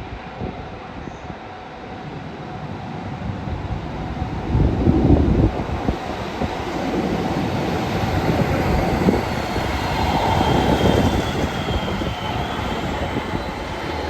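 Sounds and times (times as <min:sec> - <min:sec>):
faint high whine: 0:00.0 - 0:14.0
train wheels rumbling on rail: 0:00.0 - 0:14.0.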